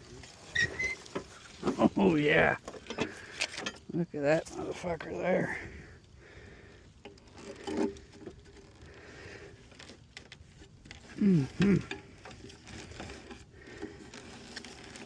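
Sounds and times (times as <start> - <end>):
hands scraping cable: 0.0 - 5.5, 7.0 - 15.0
man murmuring: 11.2 - 11.9.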